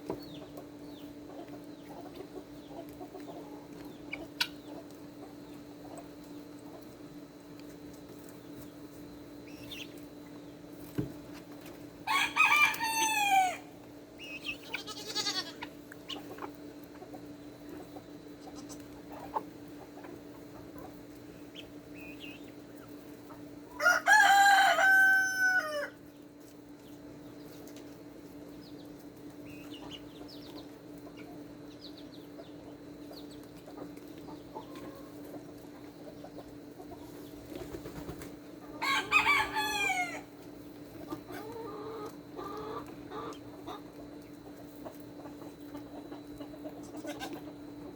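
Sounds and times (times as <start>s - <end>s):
steady low hum: 0.0s - 24.1s, 25.9s - 47.9s
chickens clucking and chirping: 0.0s - 47.9s
rooster crowing: 12.0s - 13.7s, 23.8s - 26.0s, 38.8s - 40.3s.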